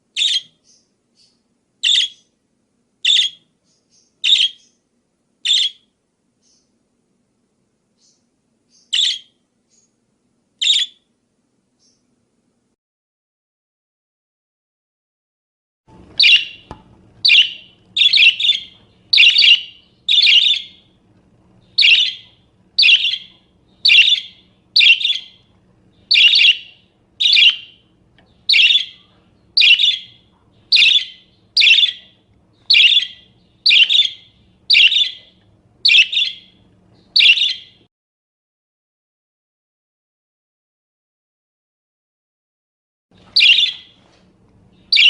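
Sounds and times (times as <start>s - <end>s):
parakeet chirping calls: 0.1s - 2.4s, 3.0s - 4.8s, 5.4s - 6.8s, 8.0s - 10.0s, 10.6s - 11.1s, 16.1s - 20.9s, 21.6s - 37.8s, 43.3s - 44.0s, 44.7s - 45.0s.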